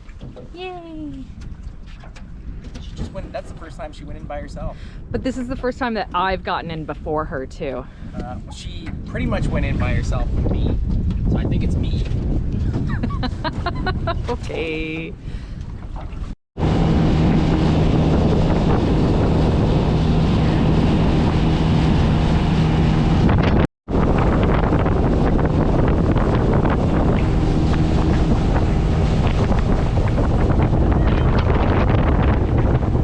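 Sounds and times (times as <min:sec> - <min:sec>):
wind buffeting microphone: 0:00.0 - 0:33.0
water rushing past hull: 0:13.3 - 0:33.0
outboard motor running: 0:15.6 - 0:33.0.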